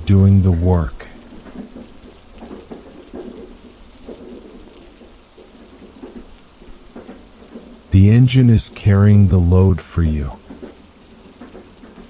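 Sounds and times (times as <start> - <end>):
low continuous rumble: 0.0 - 1.4
heavy rain falling: 0.0 - 12.0.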